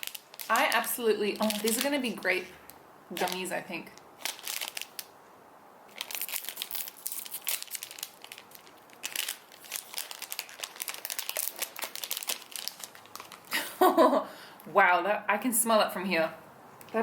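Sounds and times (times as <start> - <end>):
plastic wrapper crinkling and tearing: 0.0 - 5.2, 5.9 - 13.8.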